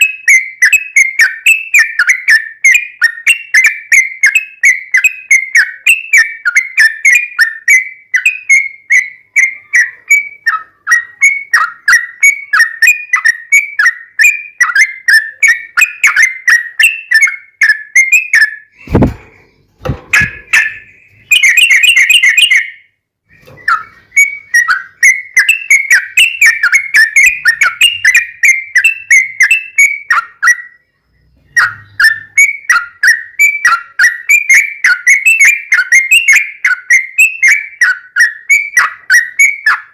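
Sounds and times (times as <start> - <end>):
bulbul chattering song: 0.0 - 39.9
low thump: 18.8 - 20.5.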